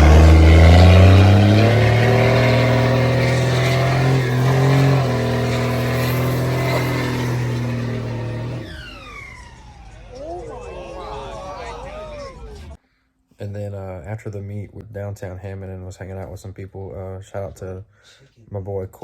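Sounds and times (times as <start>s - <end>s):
vehicle engine accelerating: 0.0s - 12.8s.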